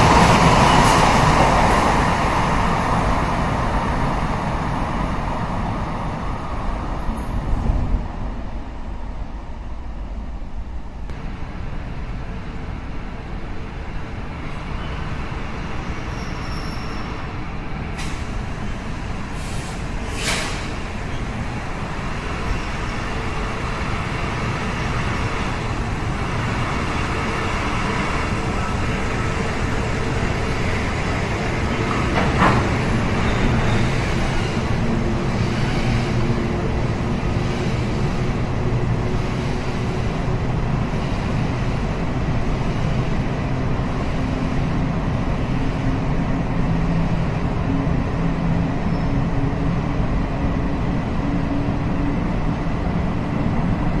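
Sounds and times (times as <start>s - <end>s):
rumble of train wheels on rail: 0.0s - 54.0s
short sharp hisses: 19.4s - 20.8s.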